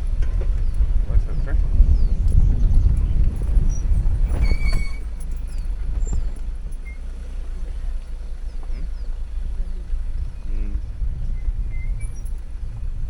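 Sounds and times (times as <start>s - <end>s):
vehicle rumble: 0.0s - 13.0s
brief high squeak: 3.6s - 7.1s.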